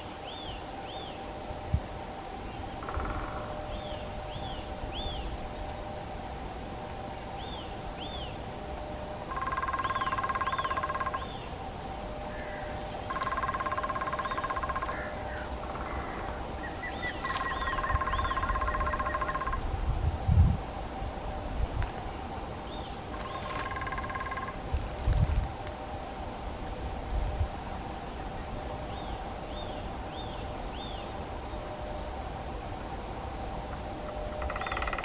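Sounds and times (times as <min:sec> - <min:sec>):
distant woodpecker drumming: 0:02.8 - 0:03.8, 0:09.3 - 0:11.5, 0:12.3 - 0:19.6, 0:23.1 - 0:24.6, 0:33.7 - 0:35.0
small birds chirping: 0:09.6 - 0:19.6
woodpecker knocking on wood: 0:34.4 - 0:35.0.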